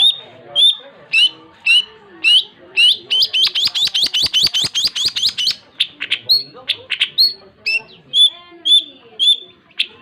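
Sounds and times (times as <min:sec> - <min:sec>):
shrike singing: 0:00.0 - 0:10.0.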